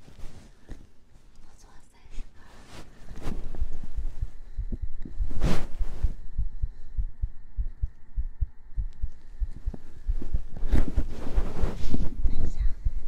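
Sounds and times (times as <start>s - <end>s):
heartbeat thumps: 3.2s - 13.0s.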